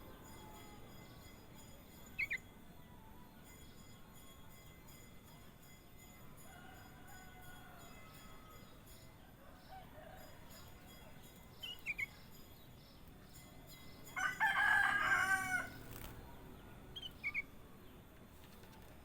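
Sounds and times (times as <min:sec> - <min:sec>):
rooster crowing: 0:14.2 - 0:15.8.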